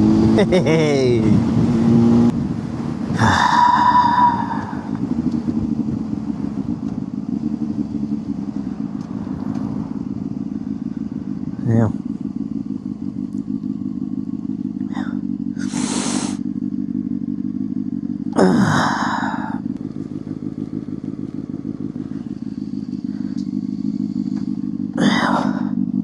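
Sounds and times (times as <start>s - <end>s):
motorcycle engine running: 0.0s - 26.0s
brief hiss: 15.6s - 16.4s.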